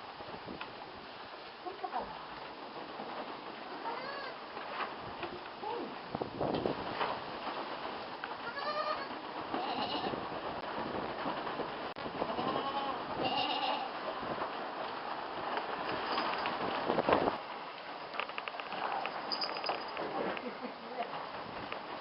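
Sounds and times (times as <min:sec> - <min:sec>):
goat kids bleating: 0:03.7 - 0:04.4, 0:08.3 - 0:10.2, 0:12.2 - 0:14.0
steady rustling: 0:14.1 - 0:22.0.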